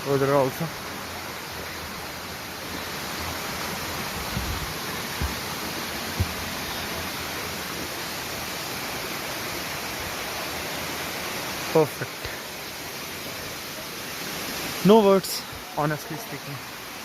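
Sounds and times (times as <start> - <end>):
waterfall rushing: 0.0 - 17.0
low thumps: 4.2 - 6.7.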